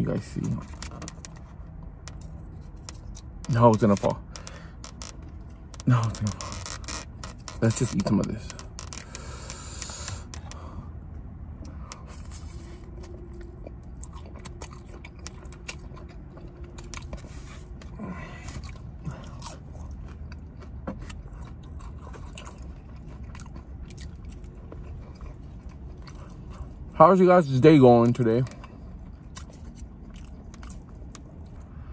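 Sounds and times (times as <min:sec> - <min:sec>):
steady low hum: 0:00.0 - 0:31.9
person chewing noodles: 0:11.5 - 0:27.0, 0:28.0 - 0:31.9.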